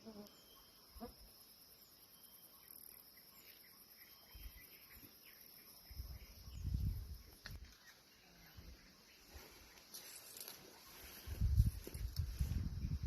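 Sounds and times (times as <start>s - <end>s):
high insect drone: 0.0s - 7.4s
faint bird chirps: 0.0s - 12.2s.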